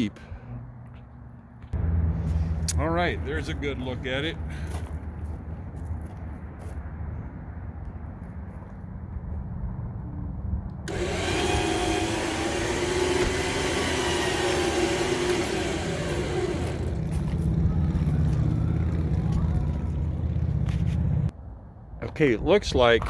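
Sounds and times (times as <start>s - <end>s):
low steady rumble: 10.4s - 21.3s
electric winch motor whine: 10.9s - 20.0s.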